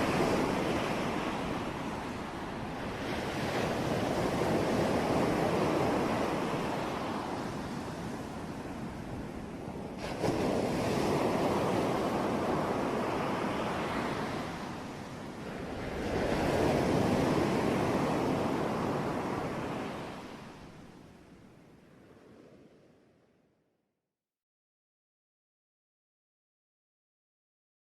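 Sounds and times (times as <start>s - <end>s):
sea waves breaking: 0.0s - 21.1s.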